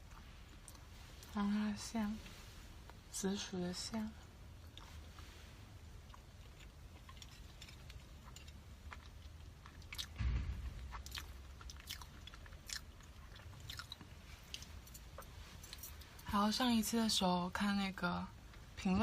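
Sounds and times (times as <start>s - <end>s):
chewing soft bun: 0.0s - 1.4s, 4.2s - 10.2s, 10.8s - 16.2s
dull low thump: 10.0s - 12.3s.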